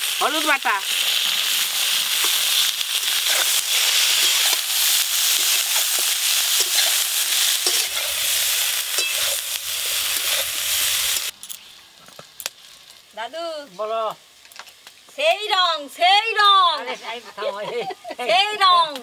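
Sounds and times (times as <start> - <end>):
vegetables sizzling in oil: 0.0 - 19.0
metal spatula scraping a pan: 2.2 - 11.7.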